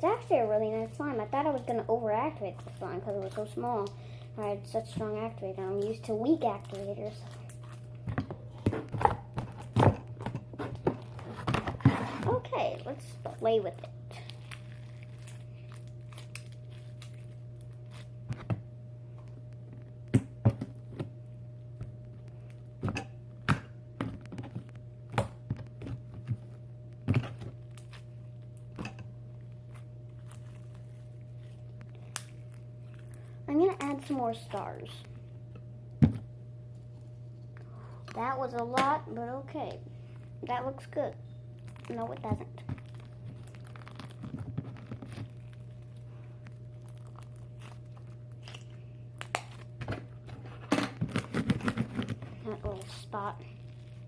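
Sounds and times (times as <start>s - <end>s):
low electrical hum: 0.0s - 54.0s
slime squished by hand: 13.2s - 18.1s, 41.6s - 49.8s.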